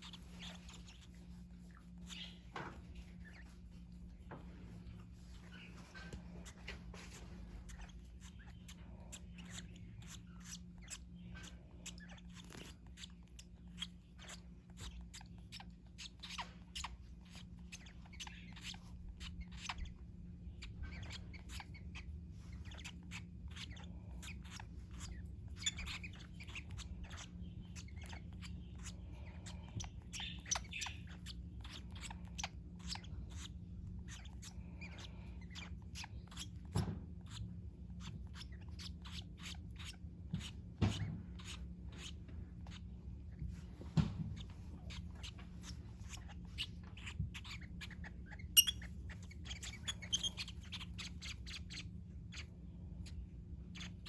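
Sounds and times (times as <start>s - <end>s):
sharp clicks and nibbling: 0.0s - 40.6s
lovebirds chirping: 0.0s - 54.0s
steady low hum: 0.0s - 54.0s.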